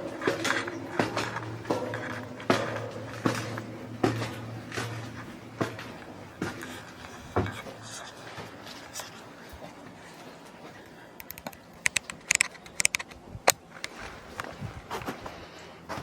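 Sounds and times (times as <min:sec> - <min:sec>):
sharp clicks and knocks: 0:11.2 - 0:14.5.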